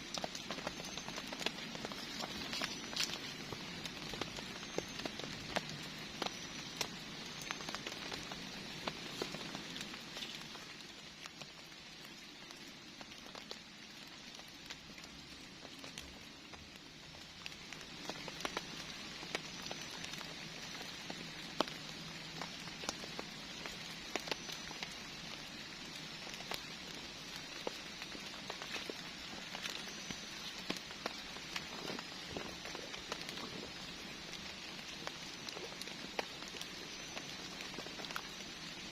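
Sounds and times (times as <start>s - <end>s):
rain hissing: 0.0s - 38.9s
raindrops tapping: 0.0s - 38.9s.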